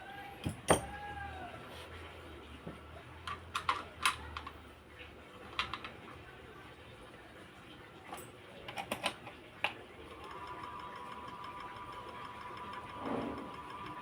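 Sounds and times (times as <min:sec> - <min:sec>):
small parts and tools clicking: 0:03.2 - 0:04.6.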